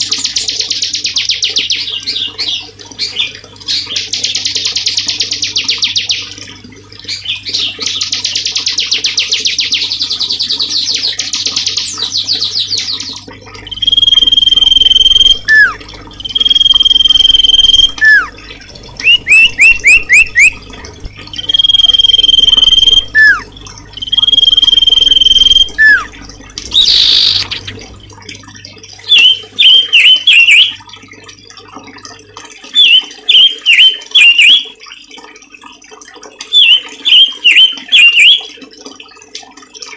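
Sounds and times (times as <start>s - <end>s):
songbird trilling and whistling: 13.7s - 18.3s, 19.0s - 20.6s, 21.3s - 26.1s, 26.7s - 27.8s, 29.1s - 30.8s, 32.8s - 34.6s, 36.6s - 38.4s.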